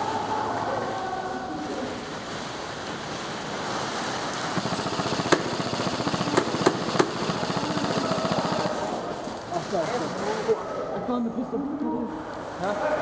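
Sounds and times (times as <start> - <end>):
noisy background: 0.0 - 13.0
sharp cracks: 2.1 - 10.4
airsoft gun firing full auto: 4.4 - 9.3.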